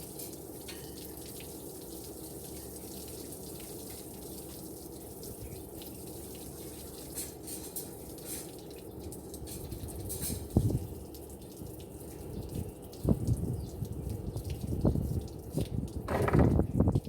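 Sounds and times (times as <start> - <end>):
tap water running into sink: 13.0 - 17.0
loud thump: 16.1 - 16.6.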